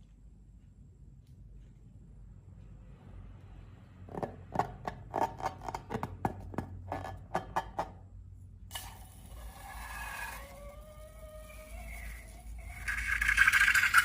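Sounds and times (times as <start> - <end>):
hiss with wavering squeal: 9.0 - 14.0.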